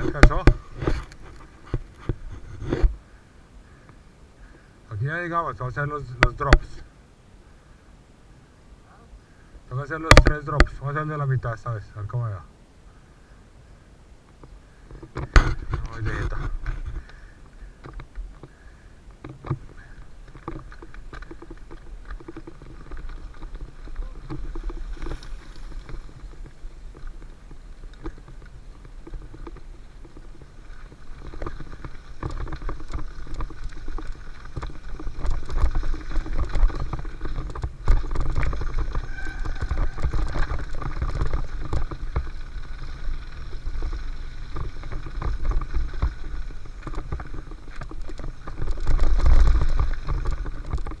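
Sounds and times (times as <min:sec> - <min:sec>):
tyres rolling over dirt: 0:00.0 - 0:03.1, 0:09.7 - 0:12.4, 0:14.3 - 0:51.0
bike rattling: 0:00.0 - 0:04.1, 0:14.3 - 0:51.0
wind rumble on microphone: 0:19.2 - 0:51.0.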